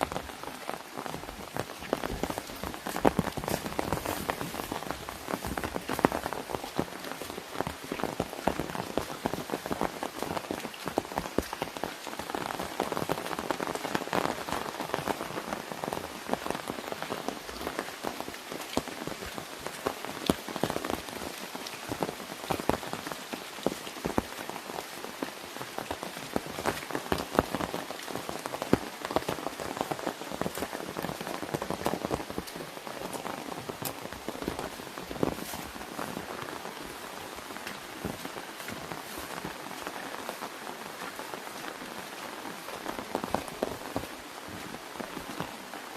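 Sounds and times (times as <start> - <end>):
rain pattering on an umbrella: 0.0 - 45.9.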